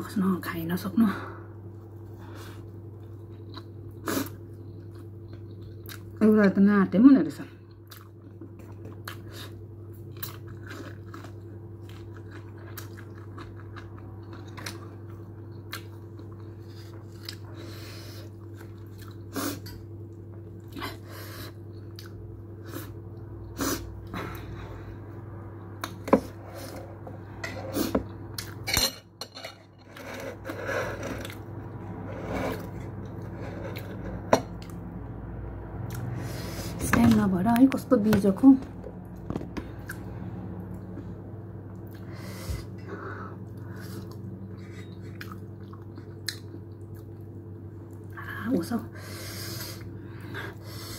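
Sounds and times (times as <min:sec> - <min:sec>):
steady low hum: 0:00.0 - 0:50.9
person chewing food: 0:02.5 - 0:06.2, 0:07.7 - 0:24.2, 0:27.7 - 0:28.6, 0:41.7 - 0:48.2.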